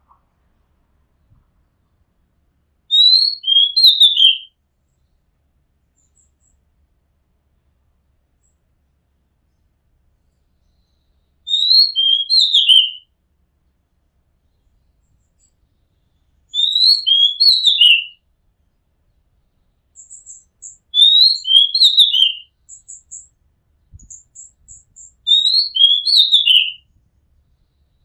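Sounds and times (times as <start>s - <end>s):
bird singing whistled phrase: 2.9s - 4.5s, 11.5s - 13.0s, 16.6s - 18.2s, 20.0s - 23.3s, 24.0s - 26.8s.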